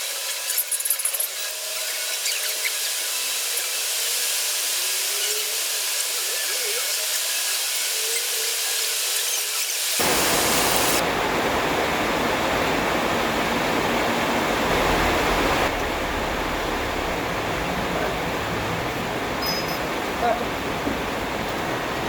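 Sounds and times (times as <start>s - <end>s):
steady rushing hiss: 10.0s - 22.0s.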